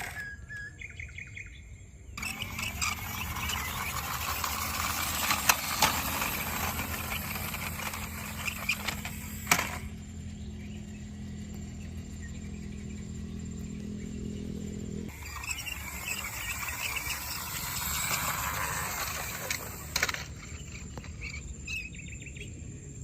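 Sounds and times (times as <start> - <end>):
small motor humming: 0.0 - 0.8, 2.2 - 22.5
chirps: 0.0 - 23.0
clatter: 2.2 - 10.1, 15.1 - 21.4.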